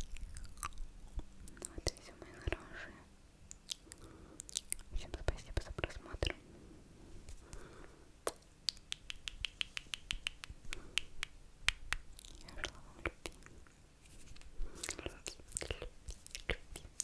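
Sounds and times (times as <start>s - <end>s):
wet mouth clicks and smacks: 3.5s - 6.4s, 8.2s - 13.5s, 14.4s - 17.0s.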